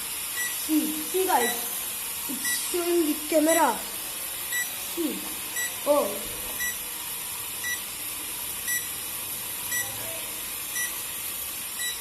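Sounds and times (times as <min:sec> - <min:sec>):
steady high hiss: 0:00.0 - 0:10.0
short high electronic beeps: 0:09.7 - 0:09.9, 0:10.8 - 0:11.0, 0:11.8 - 0:12.0.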